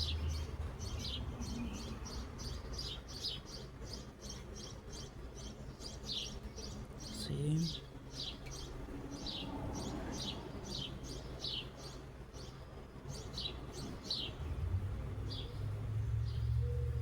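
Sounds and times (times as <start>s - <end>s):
steady low rumble: 0.0s - 3.0s, 8.7s - 17.0s
small bird chirping: 0.0s - 17.0s.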